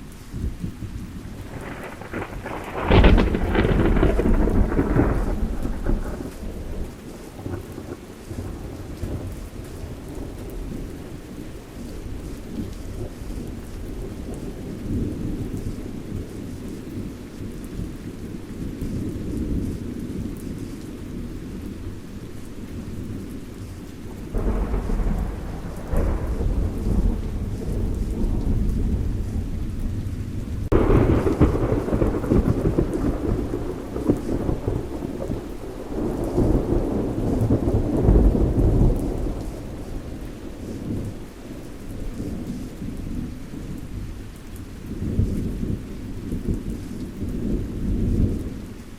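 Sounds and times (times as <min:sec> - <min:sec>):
low rumbling thunder: 0:00.0 - 0:48.9
steady rain: 0:00.0 - 0:48.9
thunderclap: 0:00.4 - 0:09.3, 0:24.2 - 0:41.5.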